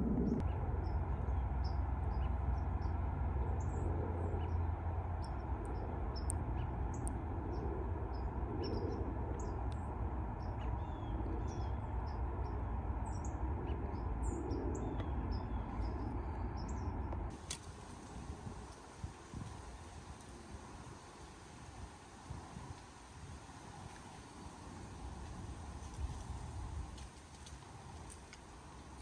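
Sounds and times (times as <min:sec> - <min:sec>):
small birds chirping: 0:00.0 - 0:17.4
steady low rumble: 0:00.0 - 0:27.1.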